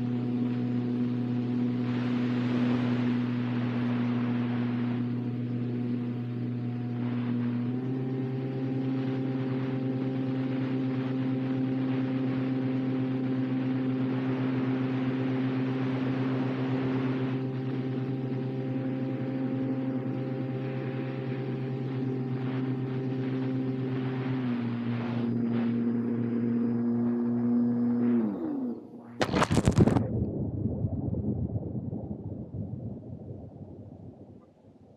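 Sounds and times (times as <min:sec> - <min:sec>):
model plane motor droning: 0:00.0 - 0:29.1.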